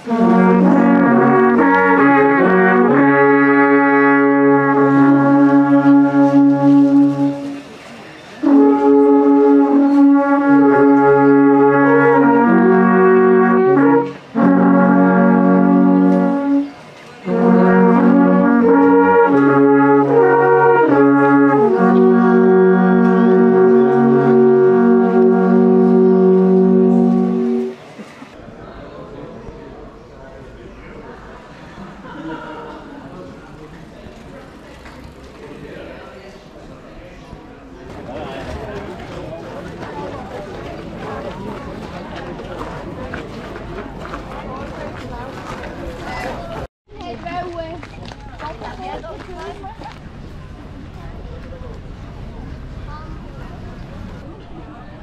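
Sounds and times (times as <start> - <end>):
brass instruments playing slow music: 0.0 - 7.8, 8.4 - 28.0.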